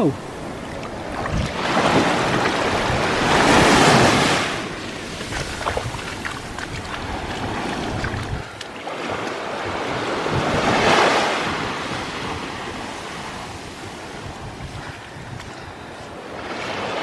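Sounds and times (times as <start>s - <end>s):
sea waves breaking on beach: 0.0s - 17.0s
wind noise on microphone: 0.0s - 17.0s.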